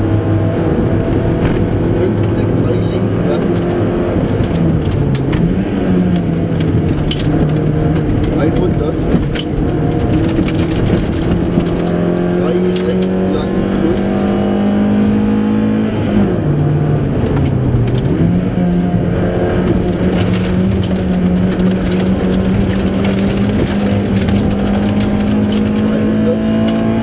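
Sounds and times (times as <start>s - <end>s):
car engine revving hard: 0.0s - 27.0s.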